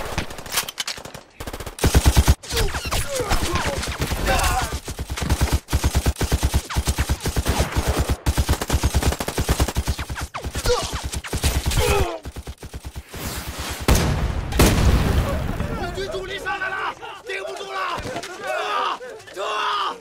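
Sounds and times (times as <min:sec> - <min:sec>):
machine-gun fire: 0:03.3 - 0:13.2
man yelling: 0:15.6 - 0:20.0.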